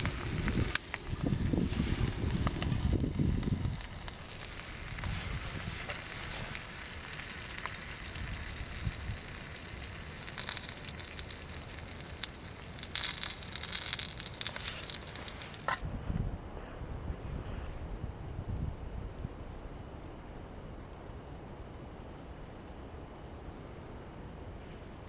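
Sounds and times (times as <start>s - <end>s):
campfire crackling and hissing: 0.0s - 17.8s.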